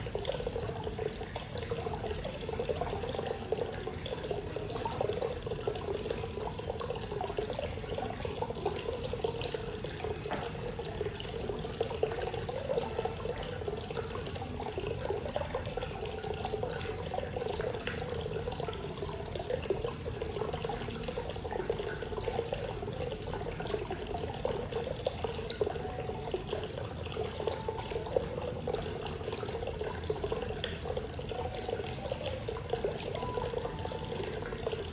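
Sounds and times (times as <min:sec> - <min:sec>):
water pouring into a bath: 0:00.0 - 0:34.9.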